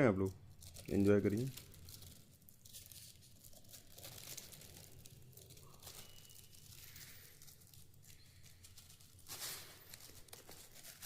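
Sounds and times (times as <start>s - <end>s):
cockatiel nibbling food: 0.6s - 9.3s.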